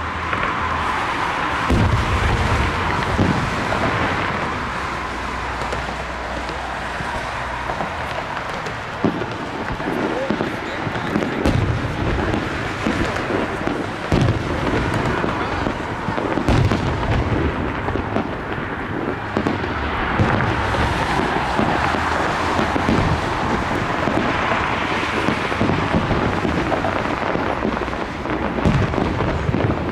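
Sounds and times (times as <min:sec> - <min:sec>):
firework shells booming: 0:00.0 - 0:29.9
fireworks crackling: 0:00.0 - 0:29.9
rumble of overlapping reports: 0:00.0 - 0:29.9.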